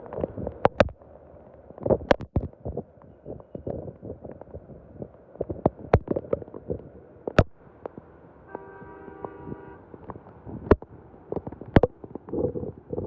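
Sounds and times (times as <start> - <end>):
sharp taps and thumps: 0.1 - 1.0, 1.8 - 4.7, 5.4 - 8.0, 10.1 - 13.0
rain: 6.9 - 11.7
car horn: 8.4 - 9.9.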